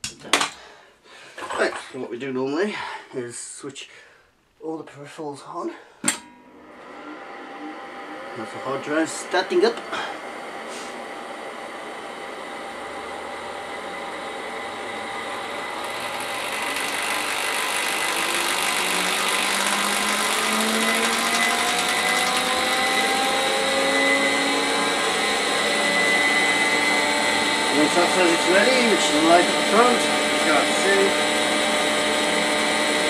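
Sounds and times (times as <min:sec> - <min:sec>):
rising whine: 0:06.5 - 0:33.0
hard drive whirring: 0:14.9 - 0:31.3.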